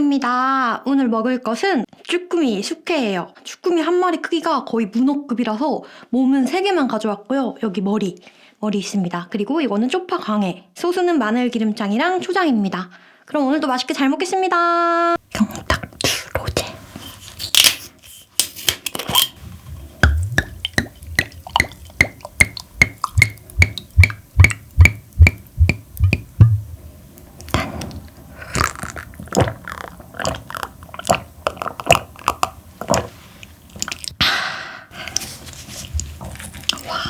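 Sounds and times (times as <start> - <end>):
wet chewing: 19.2 - 34.2, 35.0 - 37.0.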